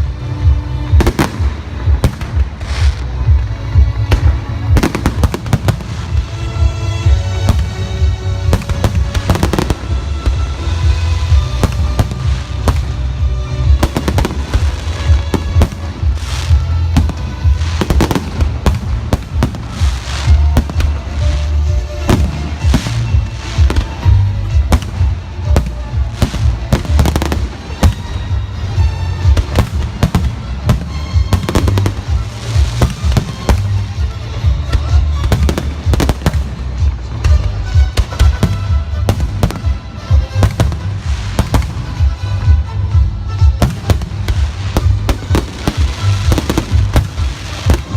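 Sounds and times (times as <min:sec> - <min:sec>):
music playing: 0:00.0 - 0:47.9
fireworks bursting with deep booms: 0:22.0 - 0:47.9.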